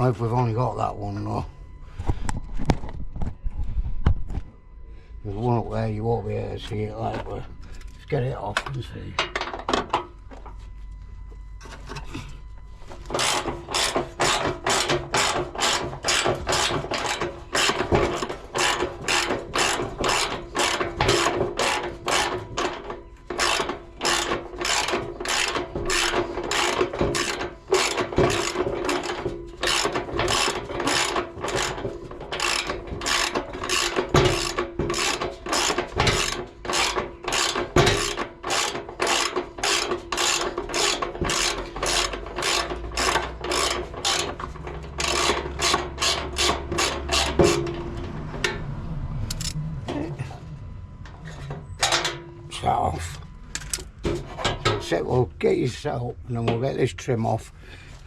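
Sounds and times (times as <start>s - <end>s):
ratchet wrench clicking: 13.1s - 22.7s, 23.3s - 47.6s, 49.3s - 49.6s.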